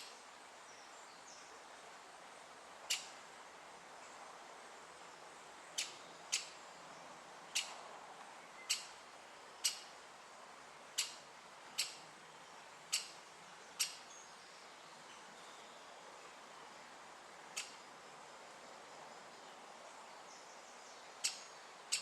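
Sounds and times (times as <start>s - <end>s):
woodpecker sharp high call: 2.9s - 3.1s, 11.8s - 12.0s, 12.9s - 13.2s, 13.8s - 14.0s, 21.2s - 22.0s.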